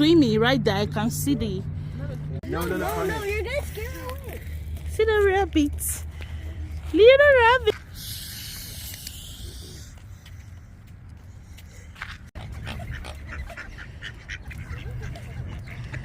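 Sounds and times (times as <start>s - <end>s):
hiss: 7.9s - 9.9s
ducks quacking: 12.4s - 16.0s.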